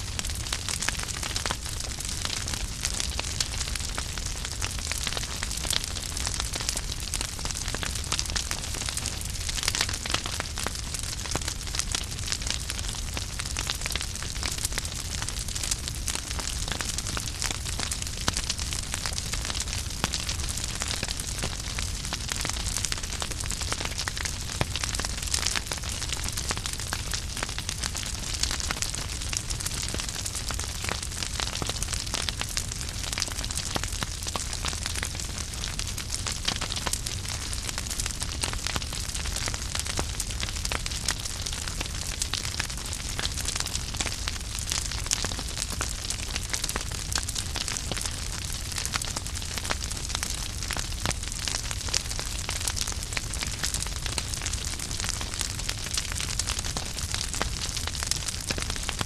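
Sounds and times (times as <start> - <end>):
flames hissing and rumbling: 0.0 - 59.0
wood fire crackling and popping: 0.0 - 59.0.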